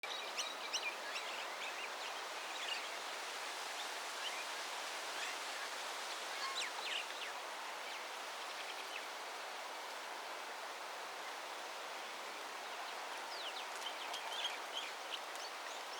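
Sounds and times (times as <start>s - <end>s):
small birds chirping: 12.8s - 15.9s.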